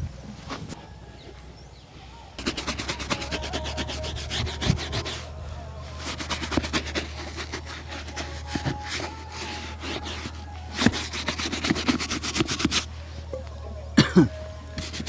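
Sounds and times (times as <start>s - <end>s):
steady low hum: 2.3s - 15.0s
rubbing strokes on leather shoe: 2.4s - 5.3s, 5.9s - 12.9s, 14.8s - 15.0s.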